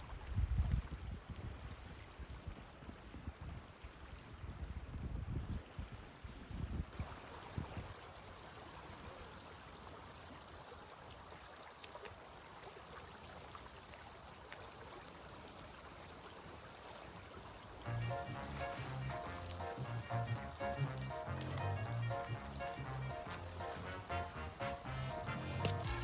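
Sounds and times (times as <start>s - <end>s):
wind rumble on microphone: 0.0s - 8.0s
river water flowing: 7.0s - 26.0s.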